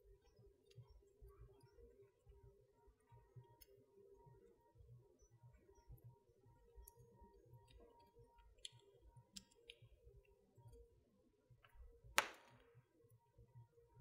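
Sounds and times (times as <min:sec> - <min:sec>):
wood fire crackling: 0:11.8 - 0:12.6
loud sharp pop: 0:12.2 - 0:12.6.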